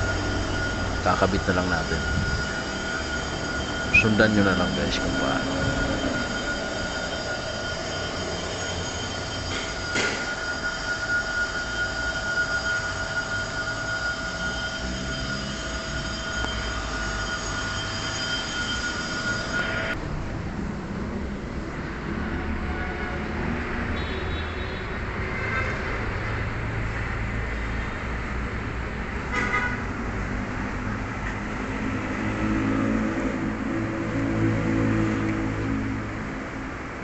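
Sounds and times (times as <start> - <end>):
high machine whine: 0.0 - 20.7, 23.8 - 37.0.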